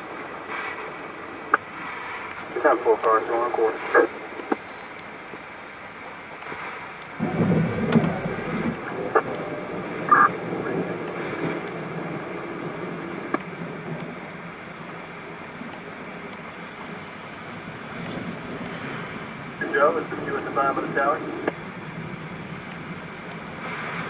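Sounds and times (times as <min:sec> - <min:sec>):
rain: 0:00.0 - 0:24.0
wind: 0:00.0 - 0:24.0
low thunder rumble: 0:07.2 - 0:24.0
faint clicks: 0:13.3 - 0:14.2, 0:21.4 - 0:21.6, 0:22.6 - 0:23.5.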